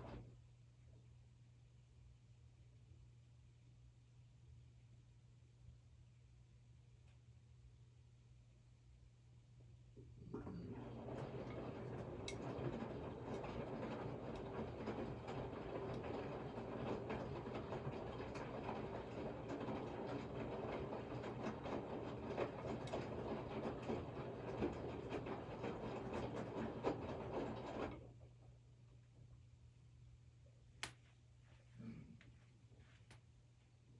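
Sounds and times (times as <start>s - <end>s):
washing machine rattling and clicking: 10.2s - 28.2s.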